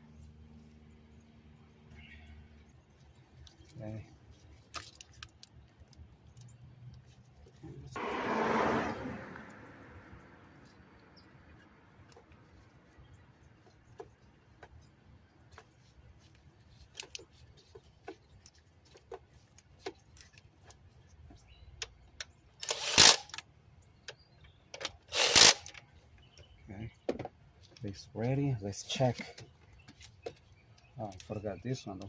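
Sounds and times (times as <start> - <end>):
short loud rushing noise: 8.0 - 10.1.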